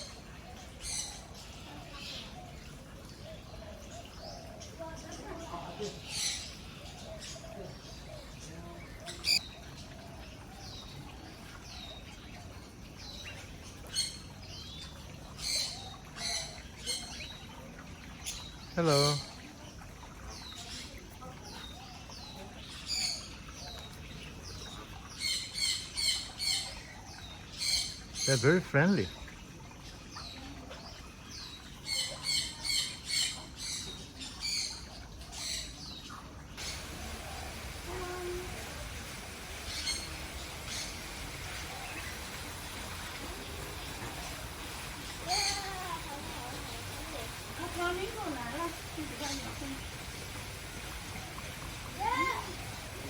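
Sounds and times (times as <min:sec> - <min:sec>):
birds chirping: 0:00.0 - 0:53.0
sharp bird calls: 0:36.6 - 0:53.0.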